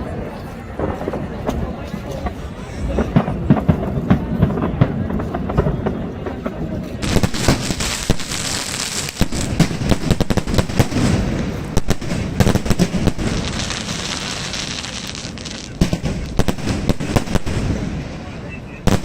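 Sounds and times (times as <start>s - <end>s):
fireworks bangs: 2.9s - 19.0s
fireworks crackling hiss: 7.0s - 19.0s.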